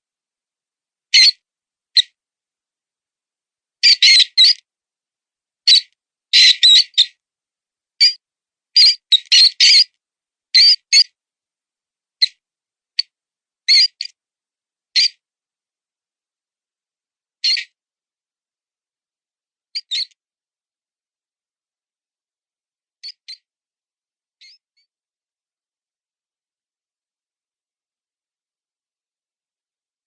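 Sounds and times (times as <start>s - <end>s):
mouse squeaks: 1.2s - 1.4s, 3.8s - 4.6s, 5.7s - 7.2s, 8.0s - 8.2s, 8.8s - 9.9s, 10.6s - 11.1s, 13.7s - 14.2s, 15.0s - 15.2s, 17.4s - 17.8s, 19.8s - 20.2s, 23.0s - 23.5s, 24.4s - 24.9s.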